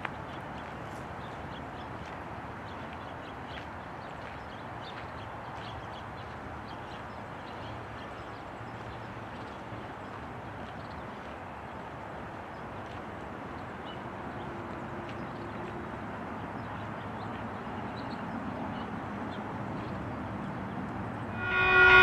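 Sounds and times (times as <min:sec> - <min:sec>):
distant train rumble: 0:21.0 - 0:22.0.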